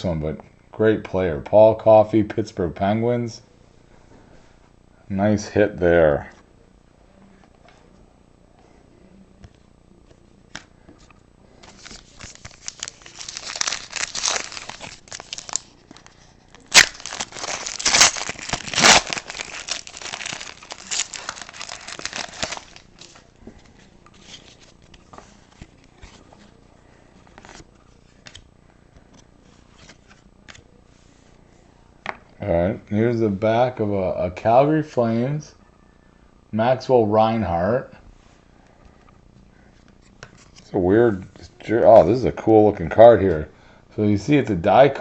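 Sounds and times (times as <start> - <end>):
wrapper crinkling and tearing: 11.6 - 23.3.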